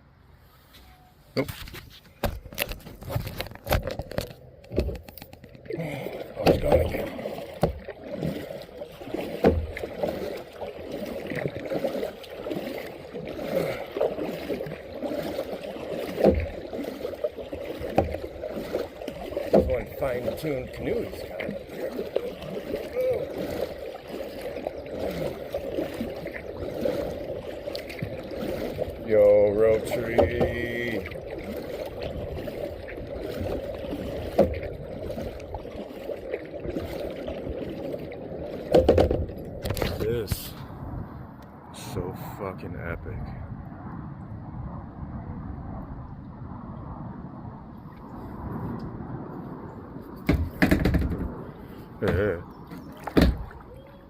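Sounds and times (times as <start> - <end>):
paddle splashing in water: 0.6 - 40.9, 50.0 - 54.0
steady water wash: 1.4 - 54.0
sharp knocks: 50.2 - 51.3.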